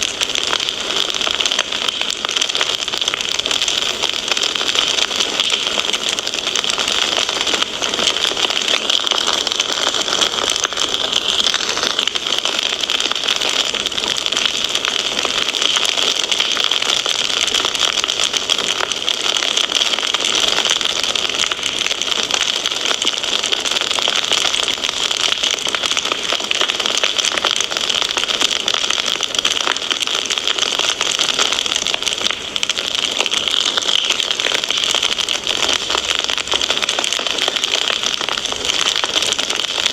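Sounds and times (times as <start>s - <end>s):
continuous hiss: 0.0s - 19.2s
wood fire crackling: 0.0s - 39.9s.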